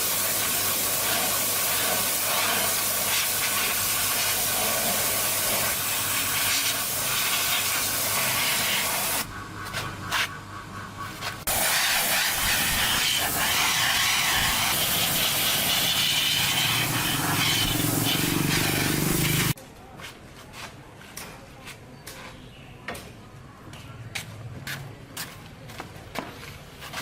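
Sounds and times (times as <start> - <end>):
loud pressurised hissing: 0.0 - 9.3, 11.5 - 19.6.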